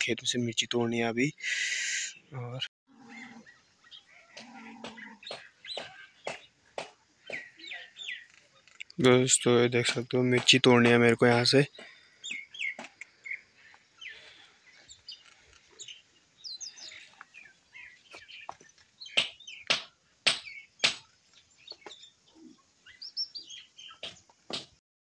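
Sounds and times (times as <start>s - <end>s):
small birds chirping: 0.0s - 24.8s.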